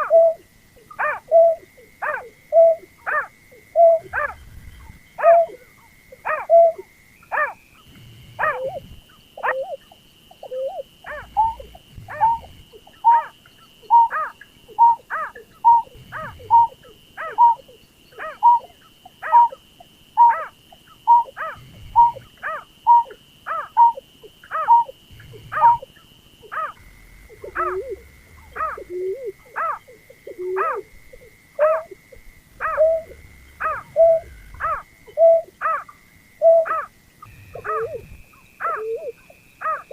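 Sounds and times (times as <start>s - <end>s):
steady high-pitched tone: 2.3s - 19.6s, 20.2s - 39.9s
bird calling falling notes: 32.6s - 39.9s.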